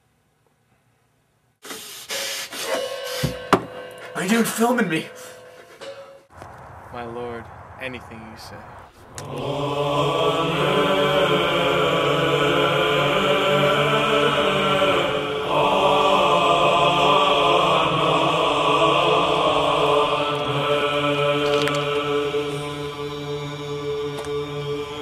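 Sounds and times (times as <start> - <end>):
person chanting a low drone: 9.3 - 25.0.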